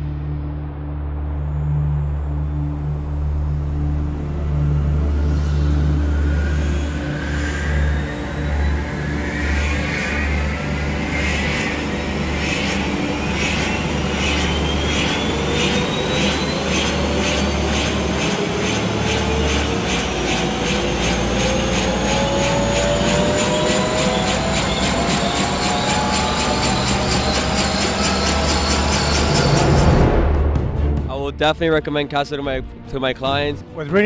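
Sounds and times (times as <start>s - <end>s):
helicopter turbine whine: 0.8s - 31.0s
helicopter rotor beat: 5.0s - 31.1s.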